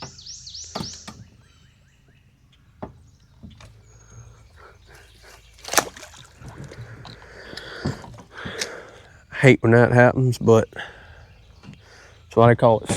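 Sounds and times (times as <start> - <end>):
bird whistling falling notes: 0.0 - 1.7.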